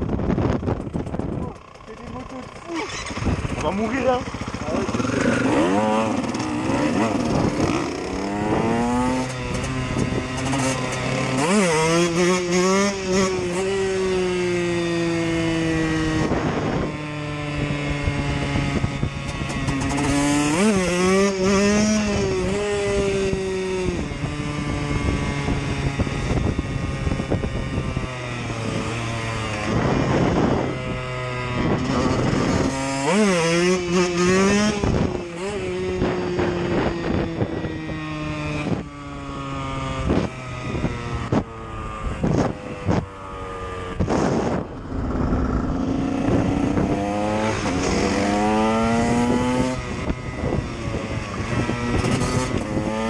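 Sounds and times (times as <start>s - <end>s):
wind on microphone: 0.0s - 1.6s, 4.8s - 53.0s
steady second engine: 0.0s - 38.4s, 39.0s - 53.0s
motorcycle accelerating through gears: 0.0s - 53.0s.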